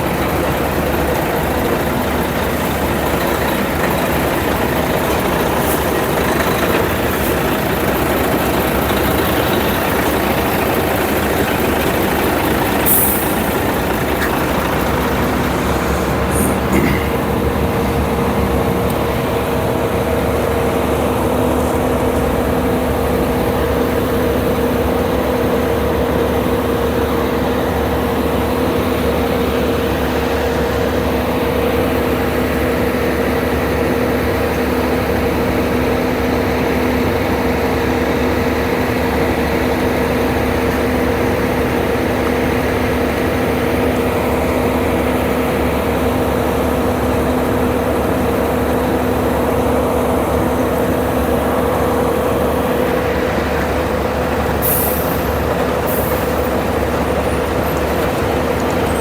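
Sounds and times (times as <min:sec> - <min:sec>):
heavy engine humming: 0:00.0 - 0:59.0.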